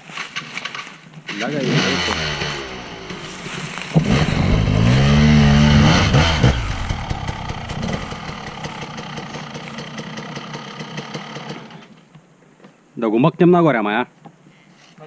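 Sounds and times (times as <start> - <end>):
dirt bike engine revving: 1.4 - 11.7.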